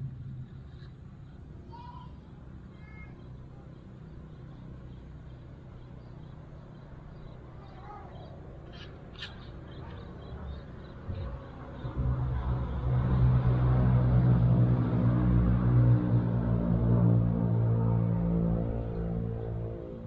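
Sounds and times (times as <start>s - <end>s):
steady low rumble: 0.0s - 7.6s, 8.4s - 20.0s
short bird calls: 7.1s - 11.5s.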